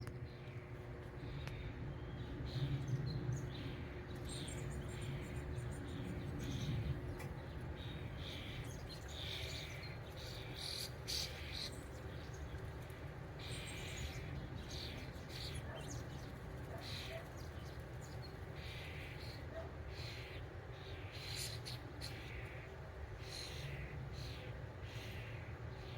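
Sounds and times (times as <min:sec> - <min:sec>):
steady low rumble: 0:00.0 - 0:16.8
small birds chirping: 0:00.0 - 0:25.9.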